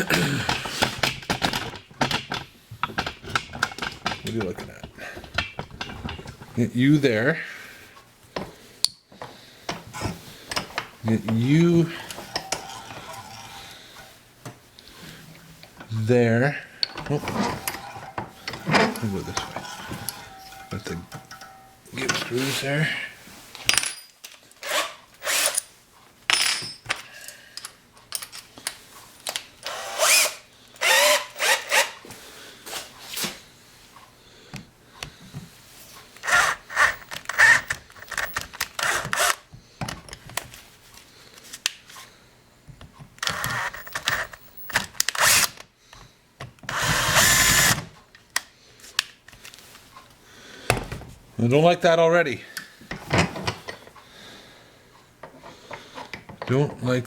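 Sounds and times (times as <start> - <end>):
faint motor hum: 4.2 - 23.4
drill bit squealing: 11.8 - 13.7, 16.9 - 21.8, 29.7 - 31.9, 36.2 - 39.3, 46.7 - 47.8
power drill cutting metal: 11.9 - 13.7, 16.9 - 21.7, 24.6 - 25.6, 29.6 - 32.0, 36.2 - 39.4, 43.2 - 45.6, 46.7 - 47.8.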